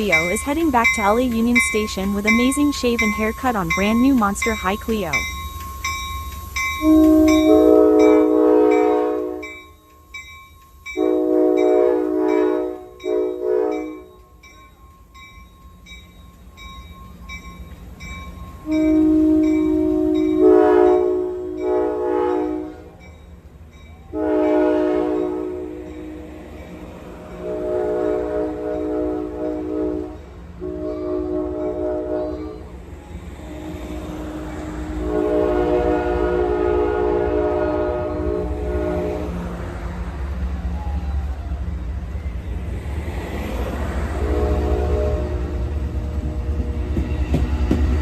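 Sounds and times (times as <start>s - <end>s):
locomotive air horn blasts: 0.0s - 5.3s, 6.8s - 9.6s, 11.0s - 14.1s, 18.6s - 23.0s, 24.1s - 25.9s, 27.4s - 32.7s, 34.9s - 39.5s, 44.1s - 45.8s
passing train rumble: 0.0s - 48.0s.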